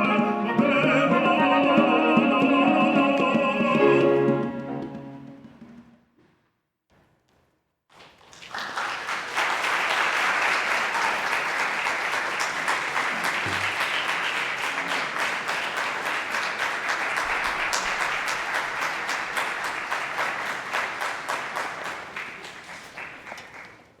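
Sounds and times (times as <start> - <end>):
audience applauding: 7.9 - 24.0.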